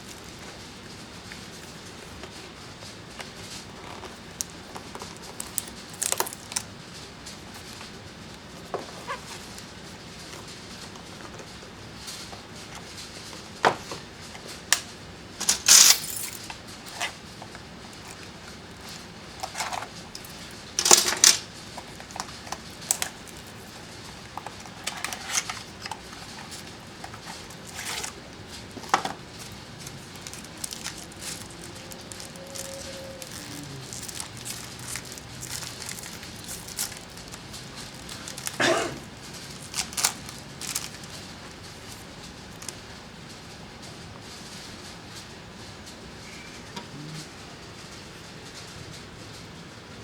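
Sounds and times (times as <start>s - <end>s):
packaging crinkling and tearing: 3.1s - 11.4s, 16.6s - 43.0s.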